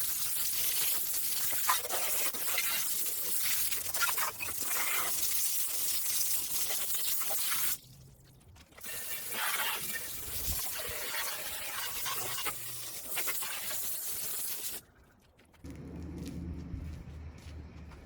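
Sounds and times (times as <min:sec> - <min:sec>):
hose spraying water: 0:00.0 - 0:07.9, 0:08.8 - 0:14.8.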